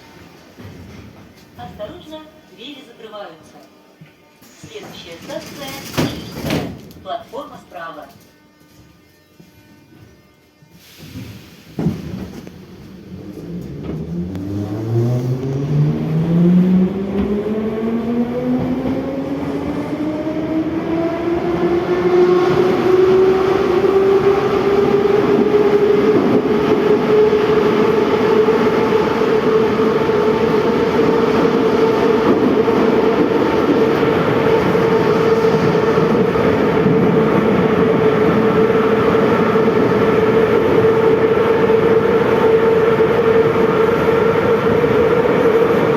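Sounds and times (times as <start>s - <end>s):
wheel and tunnel noise: 11.0s - 45.9s.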